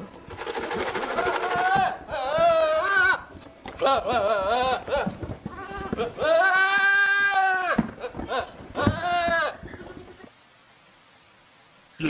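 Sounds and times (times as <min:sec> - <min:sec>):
goat or sheep bleating: 0:00.9 - 0:10.3.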